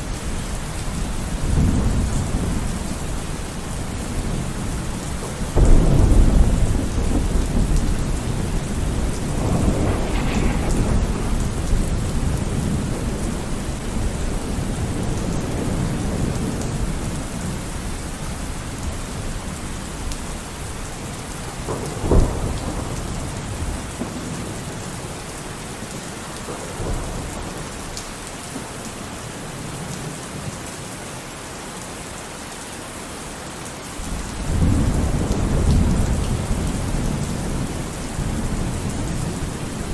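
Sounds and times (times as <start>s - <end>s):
heavy rain: 0.0s - 39.9s
thunder rumbling: 0.1s - 25.6s, 34.0s - 39.9s
sharp thunder crack: 5.5s - 16.3s.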